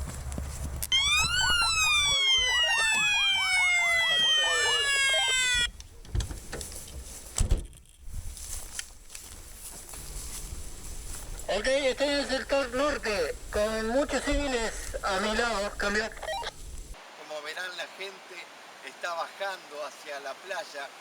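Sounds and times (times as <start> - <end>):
siren warbling: 0.9 - 5.7, 16.0 - 16.5.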